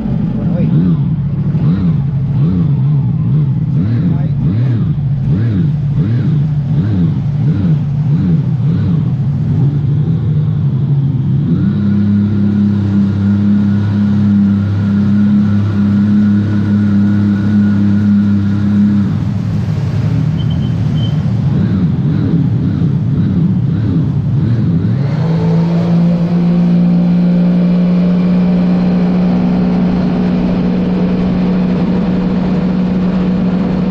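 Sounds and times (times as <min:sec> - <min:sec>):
personal watercraft engine running: 0:00.0 - 0:33.9.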